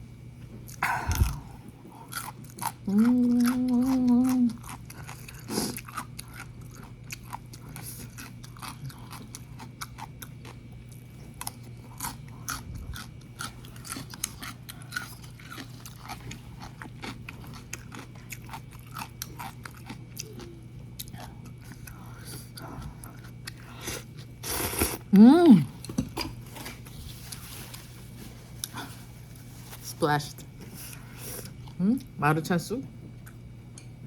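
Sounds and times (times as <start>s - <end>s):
faint low hum: 0.0s - 34.0s
person chewing noodles: 0.6s - 27.9s
person humming mmm: 2.8s - 4.7s, 24.6s - 25.7s.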